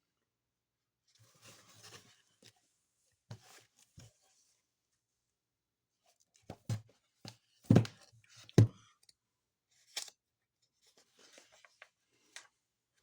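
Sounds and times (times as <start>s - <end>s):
faint scraping and rustling: 1.2s - 4.7s.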